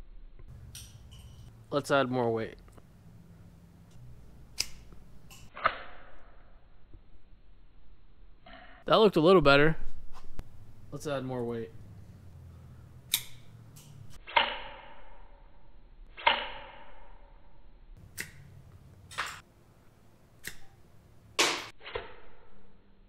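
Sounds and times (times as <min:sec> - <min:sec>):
crossbow clicks and snaps: 0:00.7 - 0:01.1, 0:03.9 - 0:05.7, 0:13.1 - 0:14.5, 0:18.1 - 0:18.5, 0:20.4 - 0:20.7
darts striking a door: 0:21.4 - 0:22.2.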